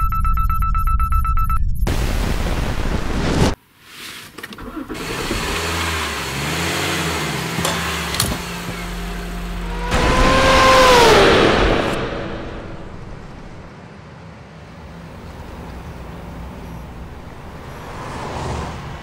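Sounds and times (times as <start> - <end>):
car engine idling: 4.7 - 13.7
car speeding past: 9.6 - 13.7.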